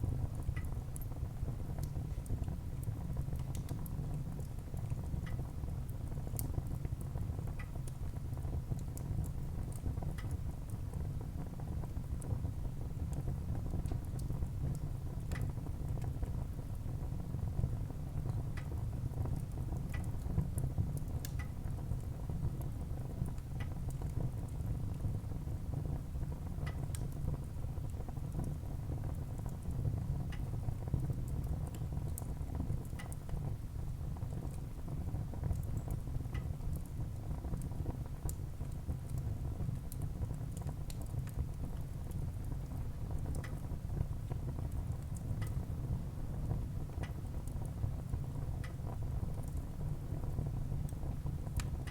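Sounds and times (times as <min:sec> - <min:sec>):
fire flames rumbling: 0:00.0 - 0:51.9
logs crackling and popping: 0:35.5 - 0:43.7, 0:50.8 - 0:51.9.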